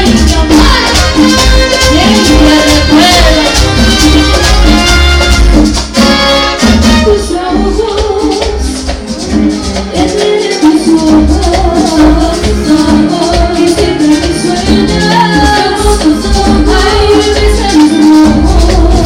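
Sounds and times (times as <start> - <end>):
heavy bass line: 0.0 - 7.2
latin dance band music: 0.0 - 19.0.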